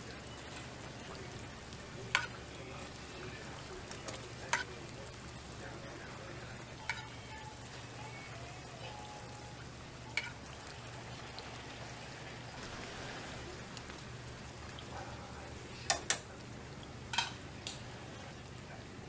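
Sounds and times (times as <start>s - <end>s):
frying in oil sizzling: 0.0s - 19.0s
metal tongs clicking: 15.9s - 16.3s.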